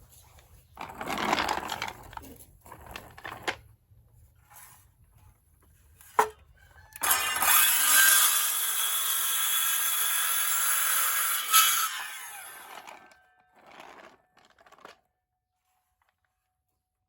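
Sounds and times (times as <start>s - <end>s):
power tool cutting: 7.0s - 14.1s.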